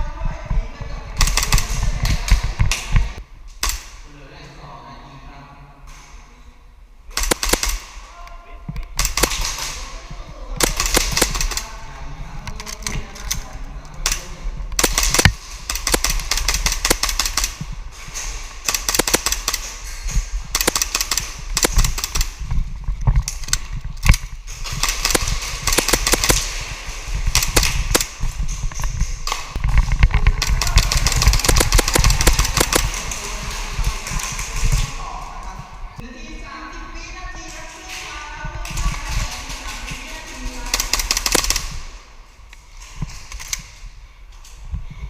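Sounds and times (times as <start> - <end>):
airsoft pistols firing: 7.1 - 8.0, 9.0 - 9.9, 10.6 - 11.6, 14.0 - 17.6, 18.6 - 22.4, 23.2 - 34.9, 38.7 - 41.9.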